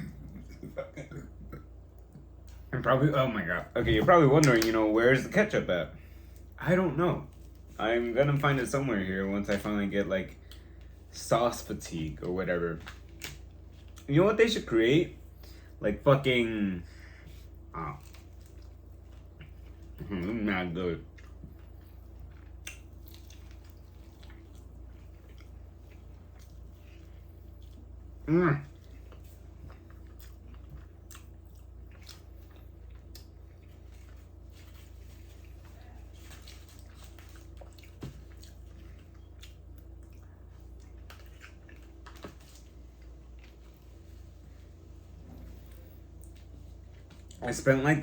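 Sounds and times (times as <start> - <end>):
steady low hum: 0.0 - 48.0
man chewing food: 12.2 - 14.1, 17.2 - 47.5.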